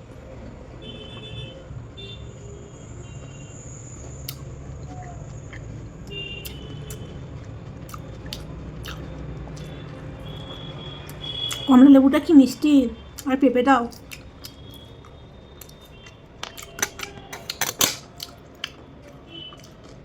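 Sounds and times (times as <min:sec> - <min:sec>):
person chewing soft fruit: 0:04.0 - 0:11.7, 0:13.2 - 0:20.0.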